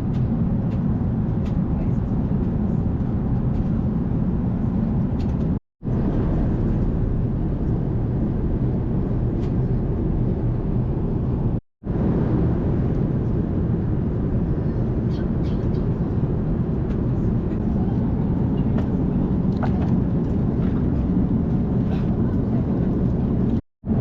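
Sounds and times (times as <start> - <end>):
airliner cabin rumble: 0.0 - 24.0.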